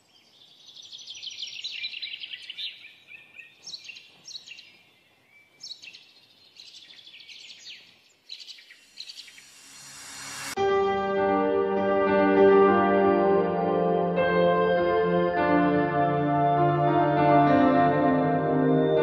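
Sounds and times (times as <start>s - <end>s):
small birds chirping in trills: 0.0s - 9.6s.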